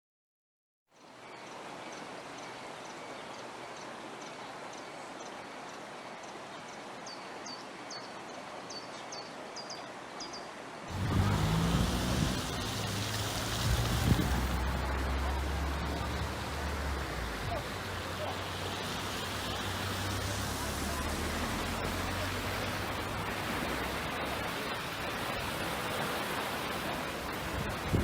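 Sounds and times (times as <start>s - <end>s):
loud rushing noise with rumble: 10.9s - 28.0s.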